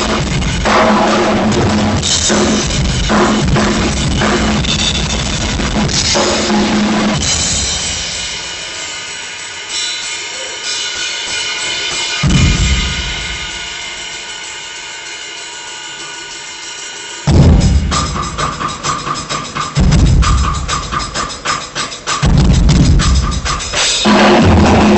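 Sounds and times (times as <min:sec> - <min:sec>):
drum kit played hard: 0:00.0 - 0:24.9
cymbal ringing: 0:02.0 - 0:19.7
low drum hit: 0:17.3 - 0:18.4.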